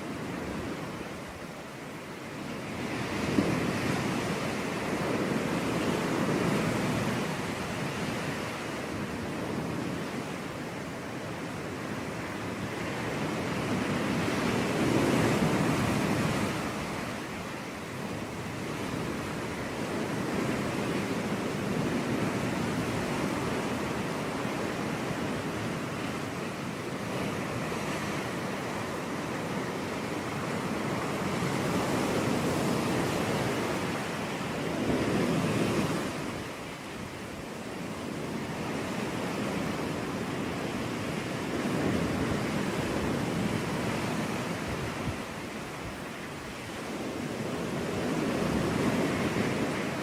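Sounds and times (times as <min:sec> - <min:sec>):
sea waves breaking on beach: 0:00.0 - 0:50.0.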